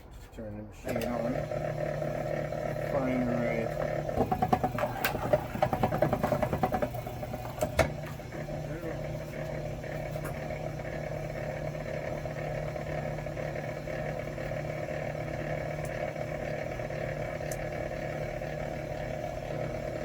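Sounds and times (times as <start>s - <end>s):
machine motor hum: 0.8s - 20.0s.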